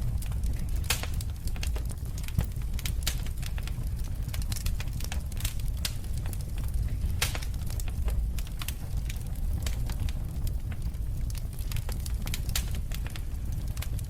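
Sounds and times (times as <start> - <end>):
flames rumbling: 0.0 - 14.0
wood fire crackling and popping: 0.0 - 14.0.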